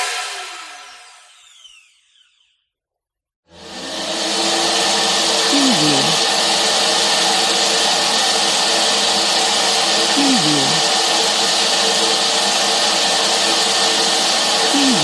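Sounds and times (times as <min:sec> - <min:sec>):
vacuum cleaner whirring: 0:03.6 - 0:15.0.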